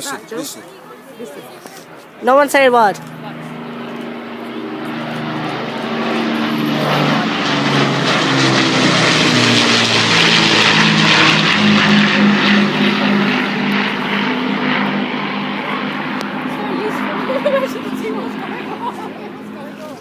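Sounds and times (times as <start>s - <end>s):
propeller aircraft droning overhead: 0.0s - 20.0s.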